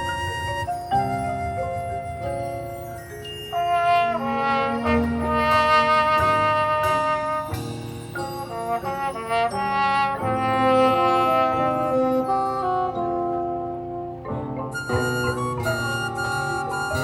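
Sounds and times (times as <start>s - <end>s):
percussion hits: 0.0s - 10.5s
brass chords: 3.6s - 17.0s.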